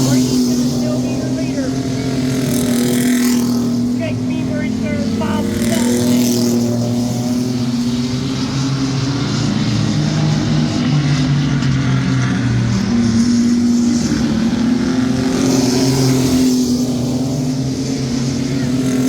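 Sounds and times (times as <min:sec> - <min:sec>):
racing truck engines droning: 0:00.0 - 0:19.0.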